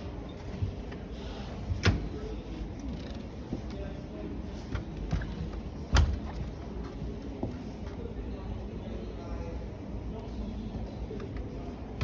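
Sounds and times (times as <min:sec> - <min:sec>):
washing machine doors knocking: 0:05.0 - 0:06.6.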